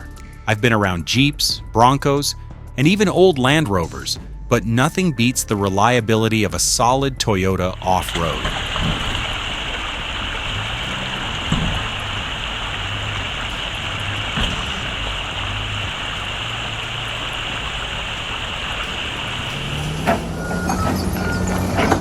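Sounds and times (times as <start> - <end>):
steady hiss: 7.8 - 20.4
car engine running at low revs: 7.8 - 22.0.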